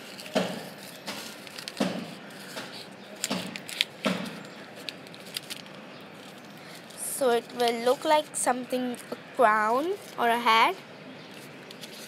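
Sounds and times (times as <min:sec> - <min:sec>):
paper rustling and crinkling: 0:00.0 - 0:09.2, 0:11.3 - 0:12.0.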